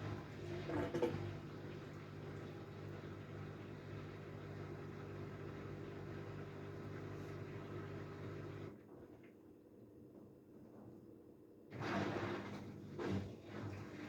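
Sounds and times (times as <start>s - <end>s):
washing machine motor hum: 0.0s - 8.8s, 11.7s - 14.0s.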